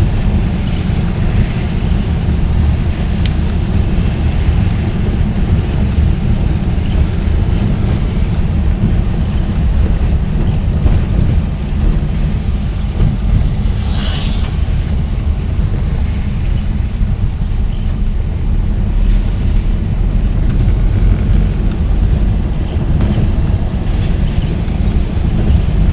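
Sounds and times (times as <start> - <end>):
vehicle rumble: 0.0 - 25.9
wind buffeting microphone: 0.0 - 25.9
brief hiss: 13.7 - 14.7.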